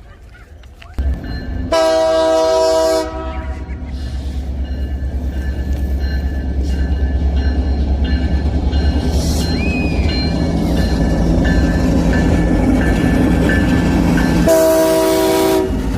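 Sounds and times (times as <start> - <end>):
train rumbling past: 1.0 - 15.9
train horn blast: 1.7 - 3.7, 14.4 - 15.9.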